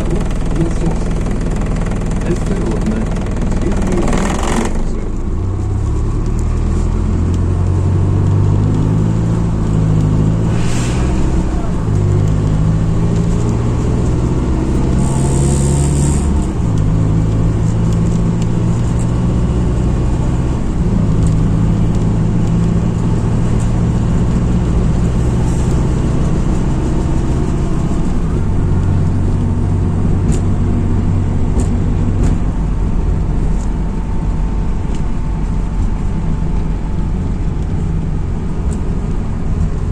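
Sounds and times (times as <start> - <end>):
bus diesel engine: 0.0 - 39.9
brief hiss: 10.3 - 12.2.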